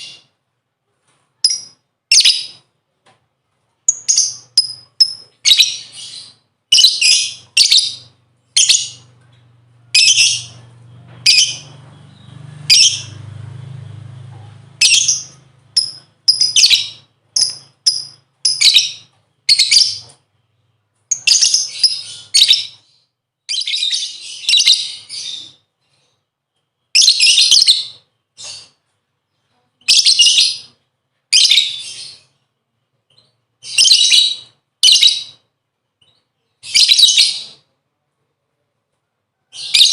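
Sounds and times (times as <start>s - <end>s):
faint low hum: 0.0s - 33.7s
lovebird chattering calls: 3.9s - 9.1s, 14.8s - 20.1s.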